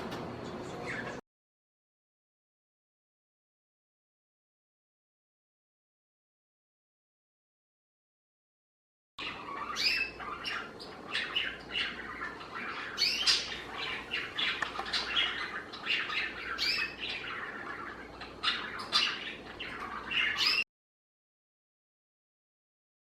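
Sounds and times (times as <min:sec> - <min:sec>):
budgerigar chattering: 0:09.2 - 0:20.6.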